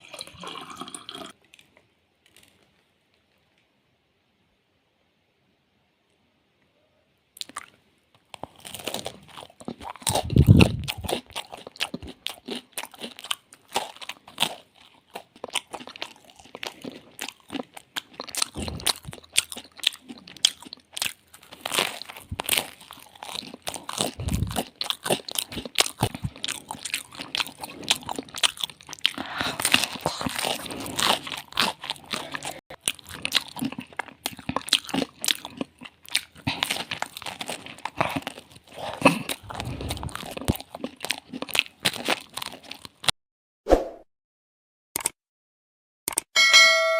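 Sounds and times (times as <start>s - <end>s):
person chewing pizza: 7.4s - 43.1s.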